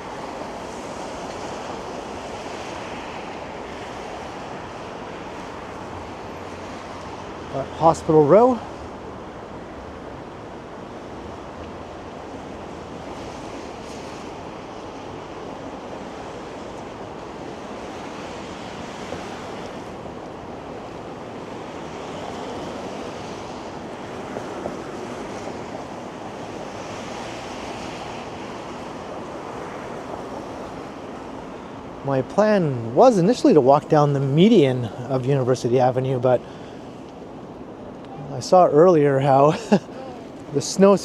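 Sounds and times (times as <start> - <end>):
roar of city traffic: 0.0 - 41.0
cars passing: 4.5 - 10.0, 17.6 - 41.0.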